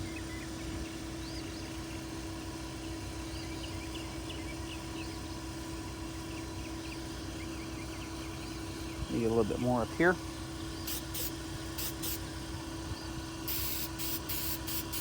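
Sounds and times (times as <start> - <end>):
small birds chirping: 6.2 - 9.8, 10.6 - 12.2
motor humming: 7.1 - 15.0.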